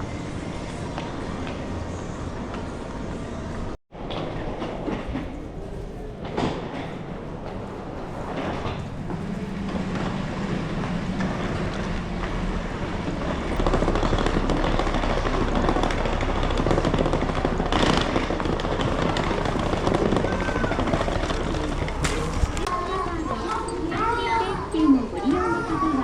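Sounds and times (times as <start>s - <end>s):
vehicle engine rumble with rattling: 8.8s - 22.8s.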